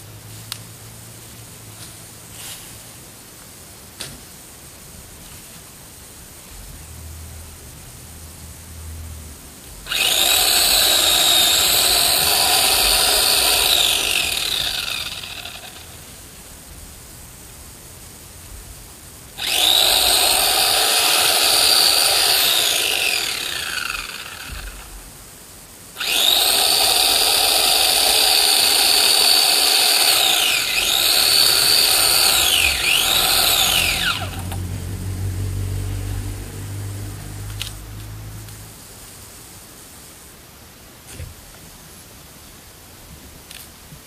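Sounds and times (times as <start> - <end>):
electric chainsaw whining: 9.9 - 16.3, 19.4 - 25.1, 26.0 - 35.4.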